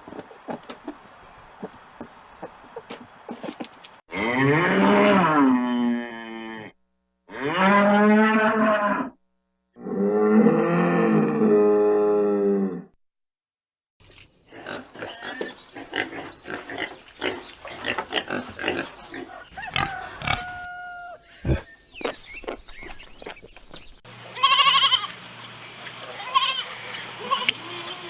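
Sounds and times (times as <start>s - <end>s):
pigs grunting and squealing: 4.1s - 9.1s, 14.5s - 23.5s
animal bleating: 4.1s - 9.2s, 19.6s - 21.6s, 24.3s - 25.2s, 26.1s - 28.0s.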